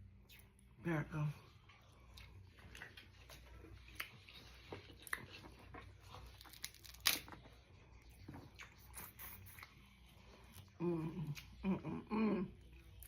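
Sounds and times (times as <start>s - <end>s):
crab shells cracking: 6.4s - 7.3s.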